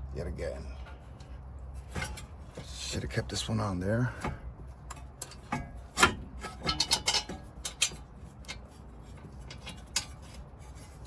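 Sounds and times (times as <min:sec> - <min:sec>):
metal tools clinking and clicking: 0:04.9 - 0:08.6.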